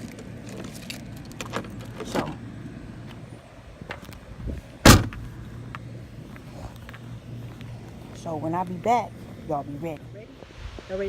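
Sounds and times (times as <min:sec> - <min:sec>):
car door slamming: 0:04.8 - 0:05.3.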